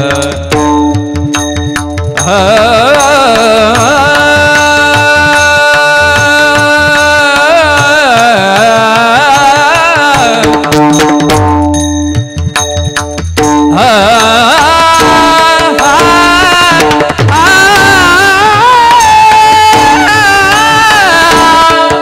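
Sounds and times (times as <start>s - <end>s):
hand drums playing: 0.0s - 22.0s
person singing ornamented notes: 2.2s - 11.4s, 13.7s - 22.0s.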